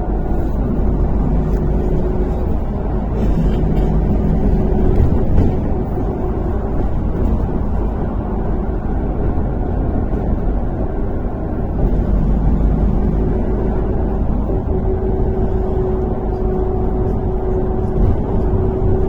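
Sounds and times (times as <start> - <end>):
bus engine and road rumble: 0.0 - 19.0
faint engine hum: 0.0 - 19.0.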